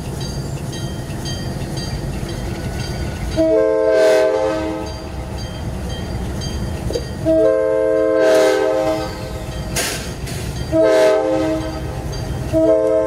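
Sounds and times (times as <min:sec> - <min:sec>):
passing train rumble: 0:00.0 - 0:13.0
locomotive air horn blast: 0:03.4 - 0:04.9, 0:07.2 - 0:10.1, 0:10.7 - 0:13.0.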